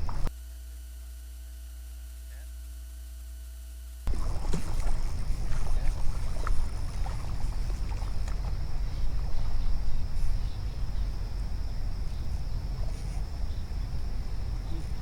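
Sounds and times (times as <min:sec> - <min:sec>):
uneven low rumbling: 0:00.0 - 0:00.3, 0:04.1 - 0:15.0
low electrical hum: 0:00.0 - 0:15.0.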